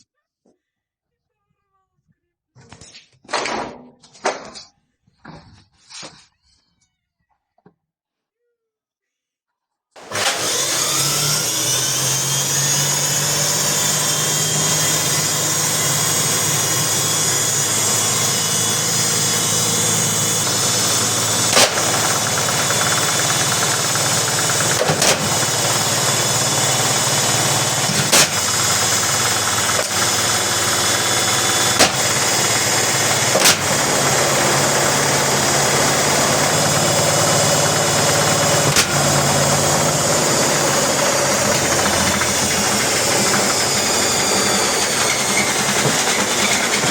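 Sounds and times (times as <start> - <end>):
washing machine motor whine: 10.0 - 46.9
loud bangs in drum: 31.7 - 32.6.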